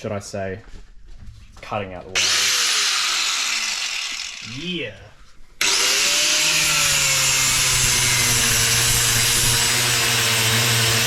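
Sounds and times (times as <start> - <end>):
angle grinder cutting: 2.2 - 4.7, 5.6 - 11.0.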